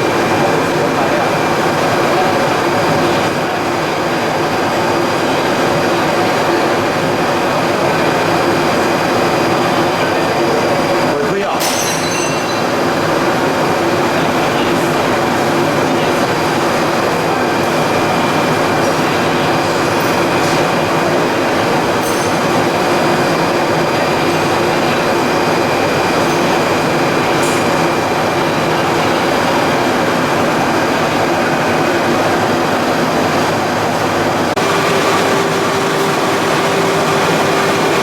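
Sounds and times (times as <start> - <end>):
machinery running with hum: 12.6 - 38.0.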